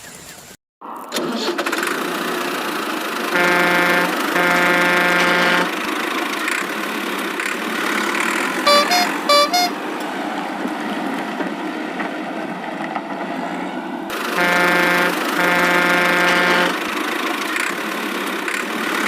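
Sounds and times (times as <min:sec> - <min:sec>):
toy engine rumble: 0:01.2 - 0:09.7, 0:14.1 - 0:19.0
two-note horn toots: 0:03.3 - 0:05.8, 0:08.6 - 0:09.8, 0:14.3 - 0:16.9
buzzing pitched tone: 0:03.4 - 0:05.7, 0:08.4 - 0:09.7, 0:14.4 - 0:16.8.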